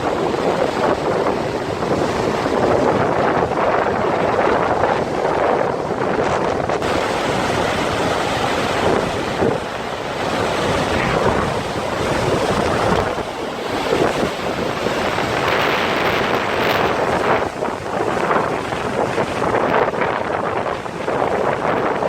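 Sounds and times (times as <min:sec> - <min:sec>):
wind buffeting microphone: 0:00.0 - 0:22.0
waterfall roaring: 0:06.8 - 0:22.0.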